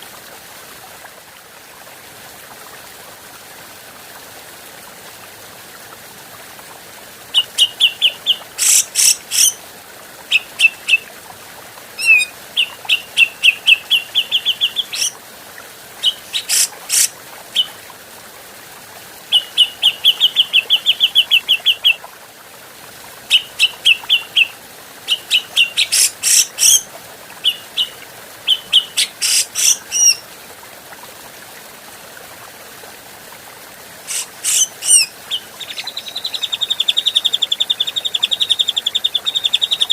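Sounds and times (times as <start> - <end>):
bird chattering calls: 7.6 - 9.6, 12.0 - 15.1, 16.0 - 17.7, 25.3 - 26.8, 28.5 - 30.2, 34.1 - 38.8.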